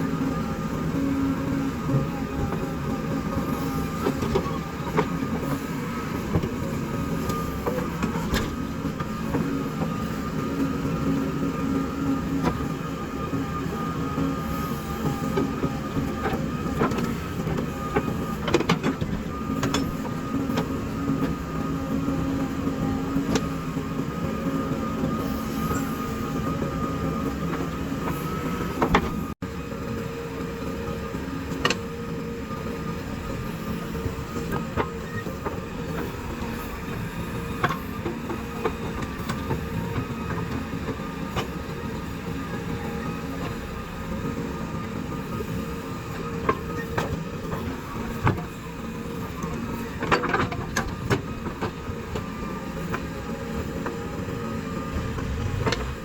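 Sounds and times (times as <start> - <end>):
backhoe diesel engine running: 0.0 - 56.0.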